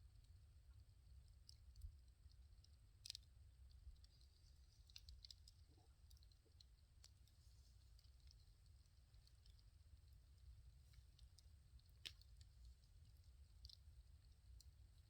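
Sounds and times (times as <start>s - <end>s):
firewood crackling: 7.1s - 15.0s
sharp pops and snaps: 10.9s - 15.0s.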